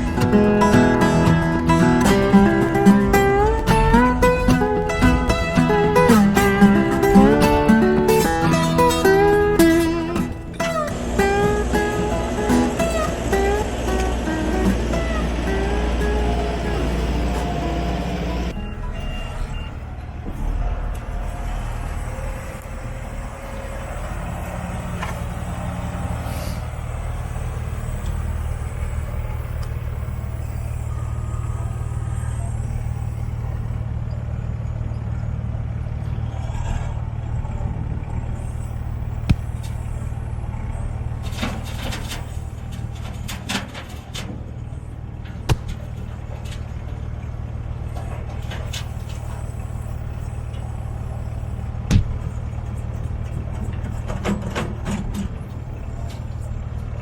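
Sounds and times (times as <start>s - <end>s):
sharp knocks and clanks: 0.0s - 16.0s, 45.2s - 46.9s, 51.9s - 52.5s
diesel engine running: 0.0s - 57.0s.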